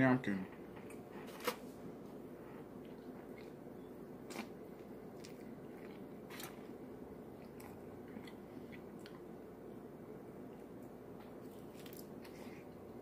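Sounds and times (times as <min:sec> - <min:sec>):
low room hum: 0:00.0 - 0:13.0
person biting and chewing: 0:04.2 - 0:06.8, 0:11.4 - 0:12.7.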